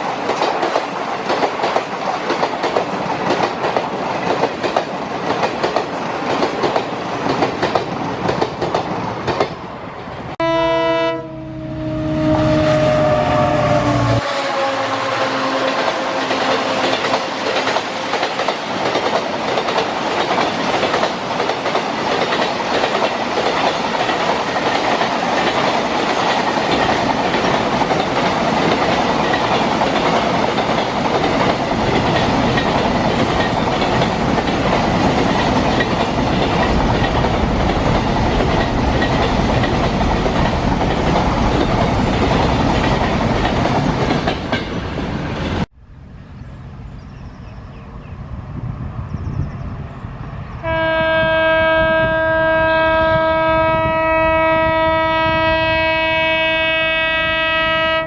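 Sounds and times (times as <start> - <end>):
train wheels clattering over rail joints: 0.0 - 9.6, 16.4 - 45.0.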